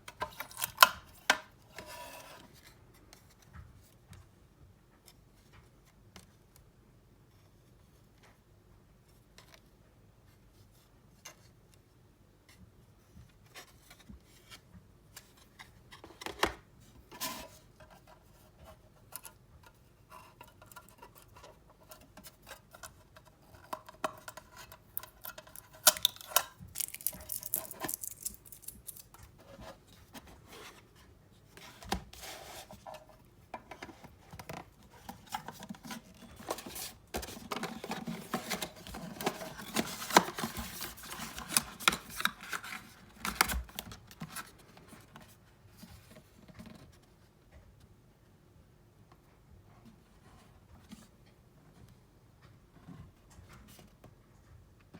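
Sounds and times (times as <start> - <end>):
hands handling plastic packaging: 23.7 - 29.7, 33.8 - 45.1.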